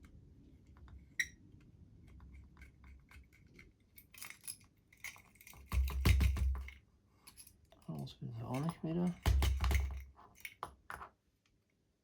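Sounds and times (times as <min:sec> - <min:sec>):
light metallic clicks and clinks: 0:03.1 - 0:11.1.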